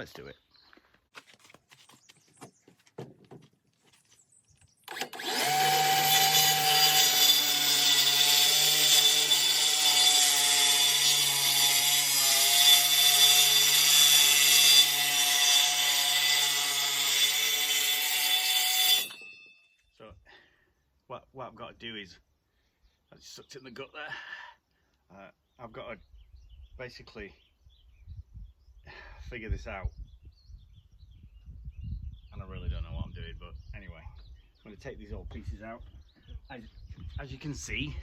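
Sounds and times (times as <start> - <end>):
power saw cutting wood: 4.9 - 19.3.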